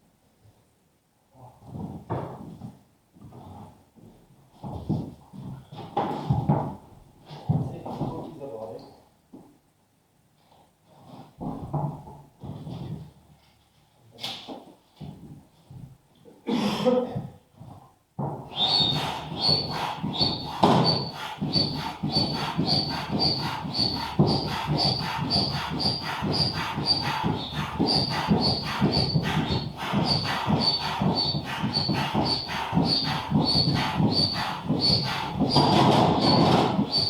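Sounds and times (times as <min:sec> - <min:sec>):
manual air pump strokes: 0:18.4 - 0:37.0.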